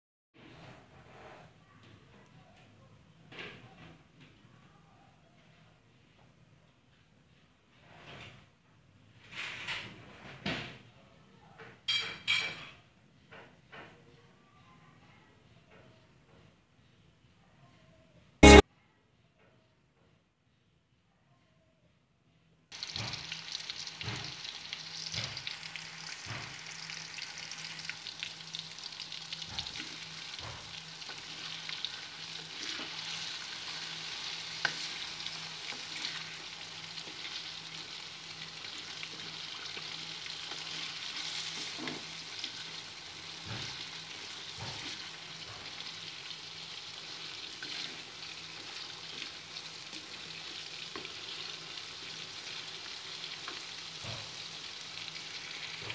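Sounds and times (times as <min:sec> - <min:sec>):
wooden spatula scraping a pan: 0:00.4 - 0:01.6, 0:29.5 - 0:38.0, 0:38.7 - 0:54.6
potatoes sizzling in hot oil: 0:22.7 - 0:55.9.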